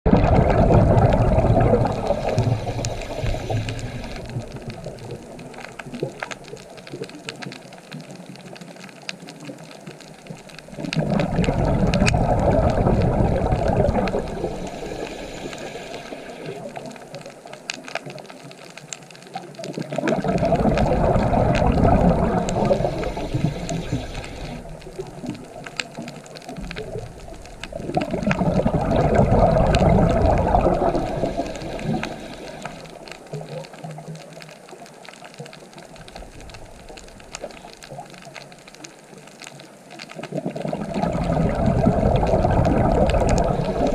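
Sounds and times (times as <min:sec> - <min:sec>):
exhaled bubbles rushing: 0:00.1 - 0:07.2, 0:10.4 - 0:17.4, 0:19.6 - 0:34.5, 0:40.2 - 0:43.9
faint sharp crackling clicks: 0:00.1 - 0:43.9.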